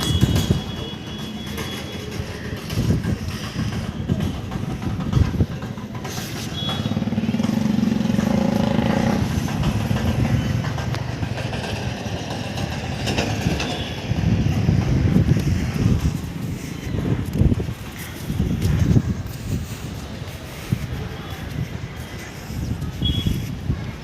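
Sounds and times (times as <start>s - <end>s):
wind rumbling on microphone: 0.0s - 1.1s, 2.1s - 6.2s, 8.0s - 24.0s
vehicle engine passing: 6.8s - 13.6s.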